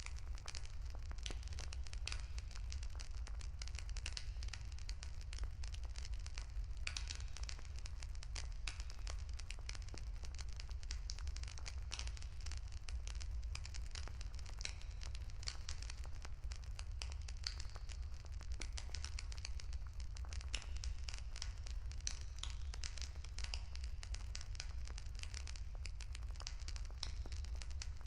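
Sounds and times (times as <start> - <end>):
bonfire crackling: 0.0 - 28.0
low rumble of fire: 0.0 - 28.0.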